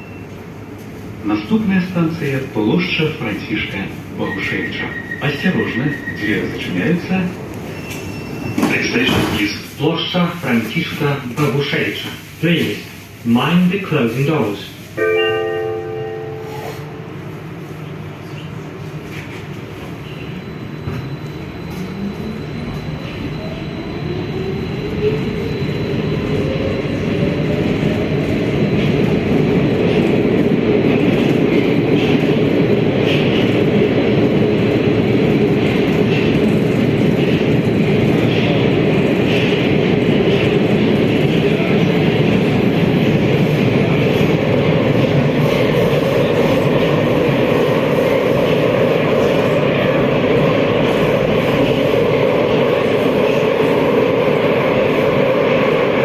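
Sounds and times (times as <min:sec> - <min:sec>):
train running rumble: 0:16.8 - 0:56.0.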